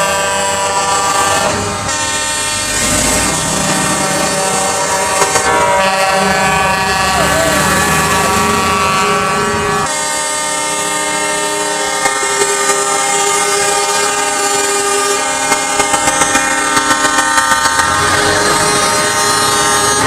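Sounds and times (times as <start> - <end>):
truck air horn blast: 0.0 - 20.0.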